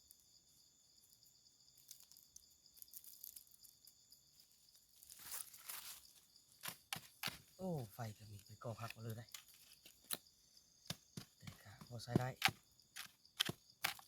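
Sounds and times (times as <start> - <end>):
insects droning: 0.0 - 14.0
small crackles and clicks: 1.0 - 5.8
rustling: 4.8 - 7.5.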